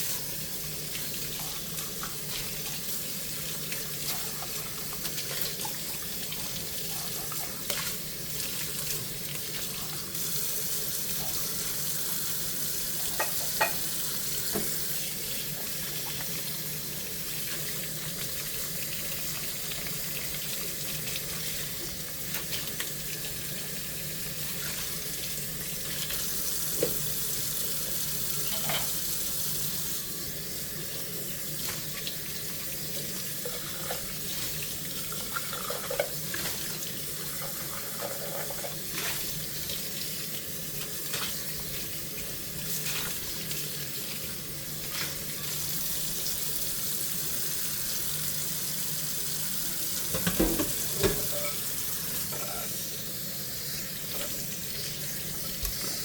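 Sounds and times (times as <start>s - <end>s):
tap water running into sink: 0.0s - 56.0s
dishes clinking: 13.0s - 13.9s, 28.4s - 29.0s, 50.1s - 52.8s.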